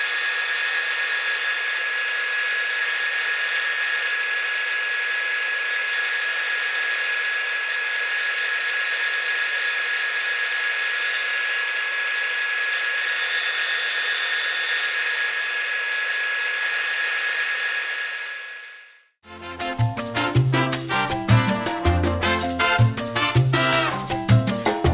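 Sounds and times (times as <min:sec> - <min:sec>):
power tool whining: 0:00.0 - 0:19.1.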